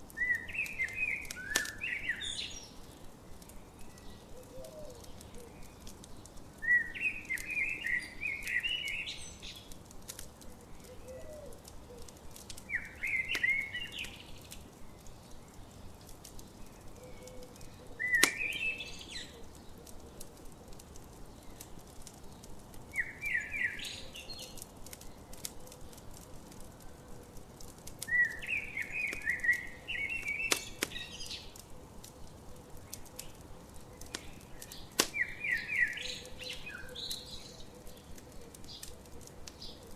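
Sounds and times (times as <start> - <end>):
campfire crackling: 0.0 - 39.9
songbird chirping: 0.1 - 39.9.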